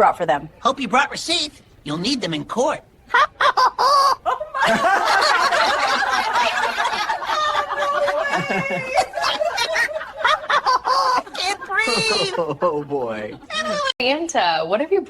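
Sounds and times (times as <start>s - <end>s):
people laughing: 3.1s - 13.9s.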